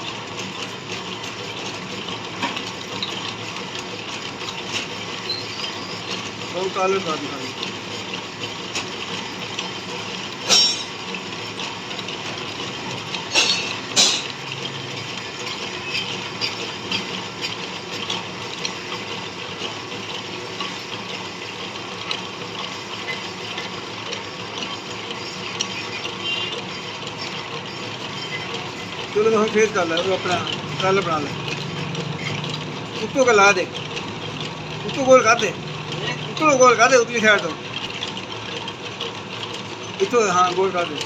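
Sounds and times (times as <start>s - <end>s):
metal lathe running: 0.0s - 41.0s
loud sharp clanks: 10.4s - 11.0s, 13.2s - 14.4s.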